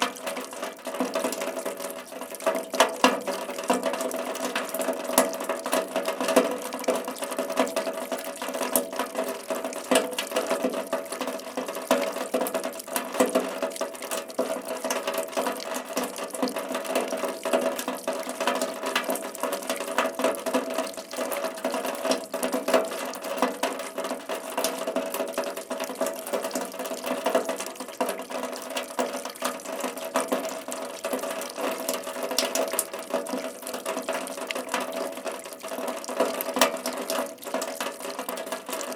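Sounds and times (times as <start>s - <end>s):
raindrops ticking: 0.0s - 38.9s
steady rain falling: 0.0s - 38.9s.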